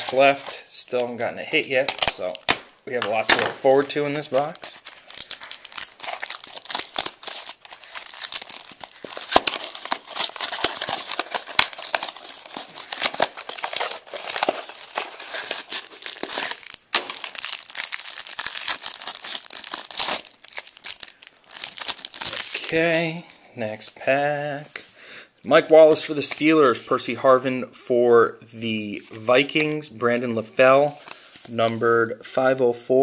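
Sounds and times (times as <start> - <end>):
card pack wrapper crinkling and tearing: 1.5 - 23.4.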